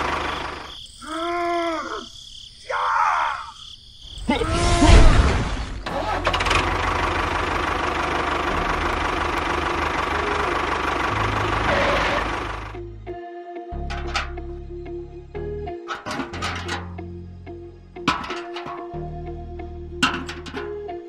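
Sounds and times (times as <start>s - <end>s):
engine running steadily: 0.0s - 0.7s, 5.9s - 13.0s.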